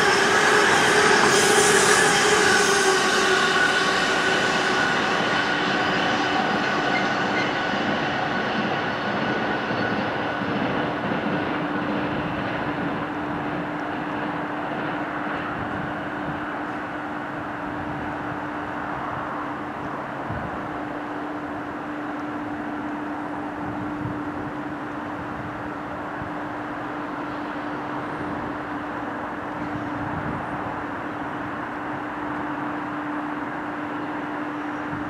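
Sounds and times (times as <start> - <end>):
train wheels on rails: 0.0 - 35.0.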